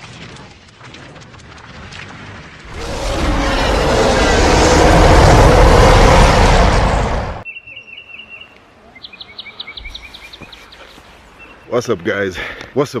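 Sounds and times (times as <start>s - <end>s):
loud rushing noise: 2.7s - 7.4s
birds chirping: 2.7s - 12.0s.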